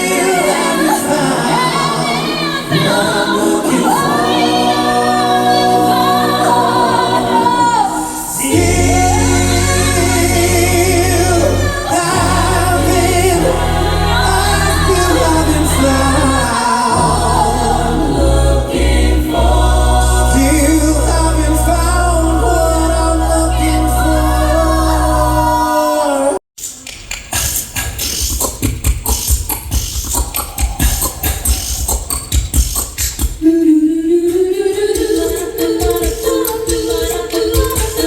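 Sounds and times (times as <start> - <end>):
vocal group singing in harmony: 0.0 - 26.4, 29.8 - 38.0
heavy bass: 8.5 - 25.8.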